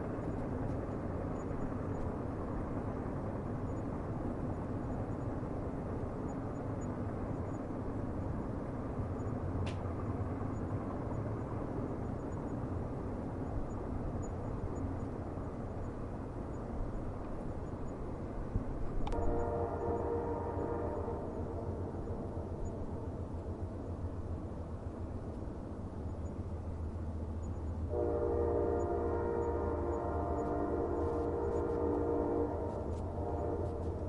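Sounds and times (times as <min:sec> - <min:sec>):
train rumbling on rails: 0:00.0 - 0:34.0
train horn: 0:19.0 - 0:21.9, 0:27.9 - 0:34.0.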